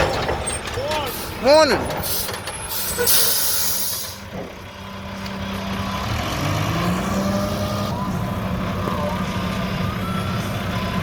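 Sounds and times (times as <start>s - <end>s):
diesel engine revving: 0.0s - 11.0s
air brakes hissing: 1.0s - 4.3s.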